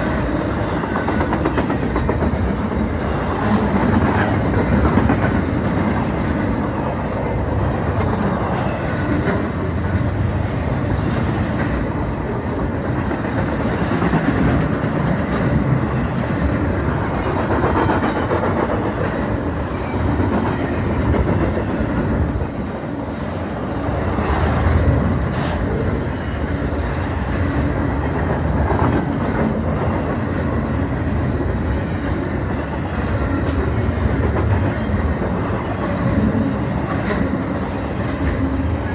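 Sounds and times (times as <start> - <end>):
freight train wheels on rails: 0.0 - 38.9.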